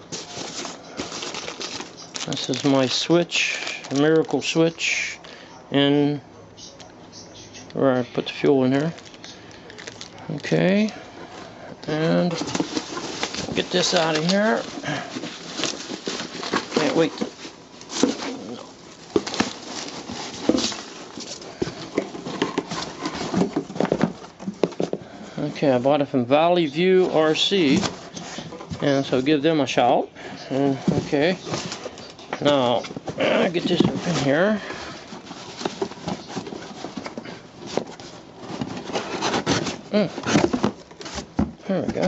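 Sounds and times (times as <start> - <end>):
cardboard box being opened: 0.0 - 4.4, 11.9 - 25.0, 27.0 - 29.1, 30.6 - 42.0
packaging knocks and rustling: 0.0 - 4.7, 8.7 - 25.6, 30.7 - 42.0.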